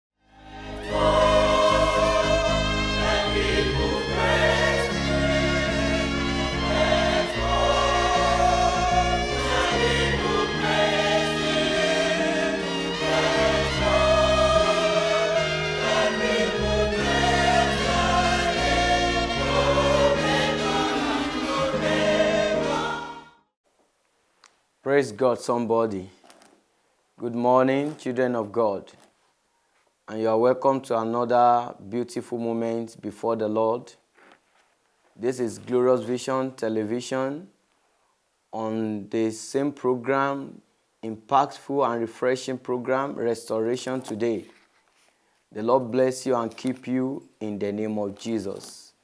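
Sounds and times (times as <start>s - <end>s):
held instrumental chords: 0.3s - 23.3s
choir singing gospel: 0.3s - 23.4s.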